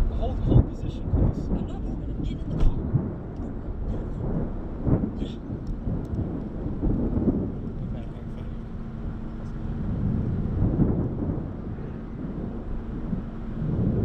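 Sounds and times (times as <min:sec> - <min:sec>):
hail knocking: 0:00.0 - 0:08.4
thunder rumbling: 0:00.0 - 0:14.0
wind rumbling: 0:00.0 - 0:14.0.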